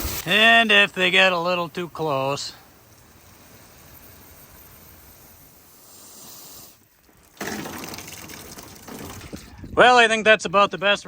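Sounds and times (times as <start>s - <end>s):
faint steady hiss: 0.0s - 7.7s
water running into a tank: 6.8s - 9.5s.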